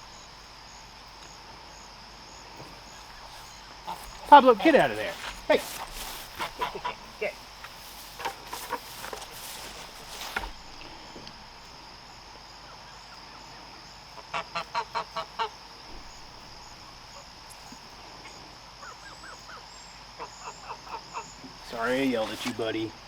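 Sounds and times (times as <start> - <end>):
insect hiss: 0.0 - 23.0
goose honking: 3.2 - 9.9, 14.1 - 15.6.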